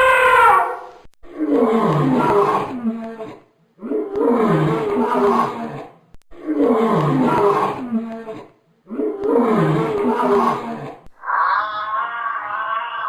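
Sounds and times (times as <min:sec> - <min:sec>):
large animal roaring: 0:08.9 - 0:13.0.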